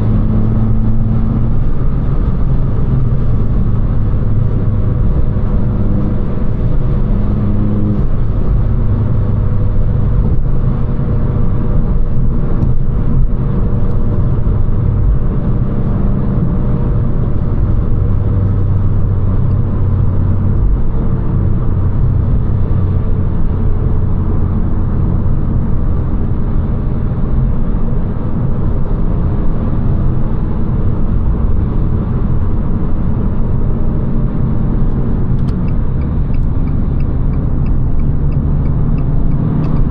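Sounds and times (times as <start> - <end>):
car engine drone: 0.0 - 39.9
road and tyre noise: 0.0 - 39.9.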